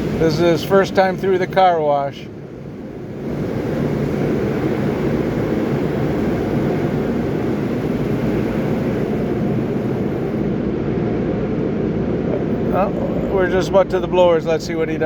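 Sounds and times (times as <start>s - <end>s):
car wash machinery rumbling: 0.0s - 15.0s
water washing over car: 2.9s - 10.5s.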